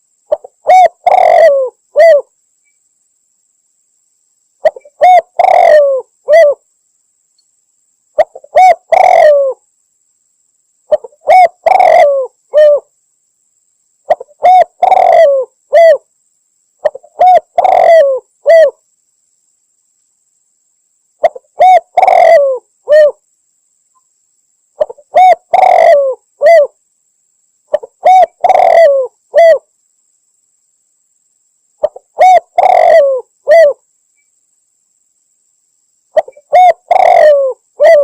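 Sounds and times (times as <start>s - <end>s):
dove cooing: 0.3s - 2.3s, 4.6s - 6.6s, 8.2s - 9.6s, 10.9s - 12.9s, 14.1s - 16.0s, 16.8s - 18.8s, 21.2s - 23.2s, 24.8s - 26.8s, 27.7s - 29.7s, 31.8s - 33.8s, 36.2s - 38.0s.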